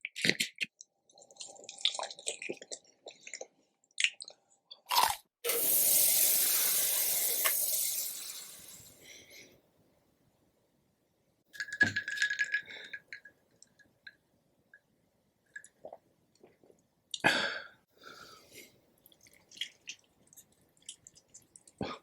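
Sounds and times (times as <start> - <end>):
person chewing chicken: 19.1 - 21.9.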